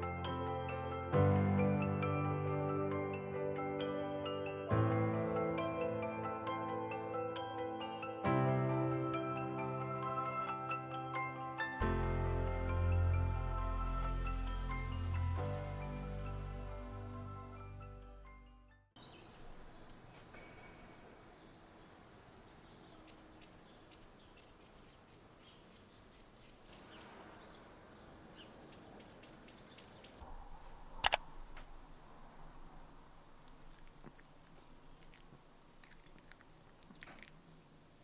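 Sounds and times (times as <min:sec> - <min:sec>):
small birds chirping: 0:19.0 - 0:30.2, 0:33.3 - 0:37.8
sharp click: 0:31.0 - 0:31.8.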